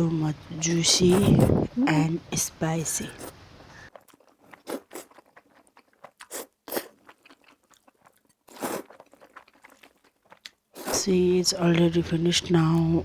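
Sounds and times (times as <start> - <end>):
close-miked biting and chewing: 3.1 - 11.0.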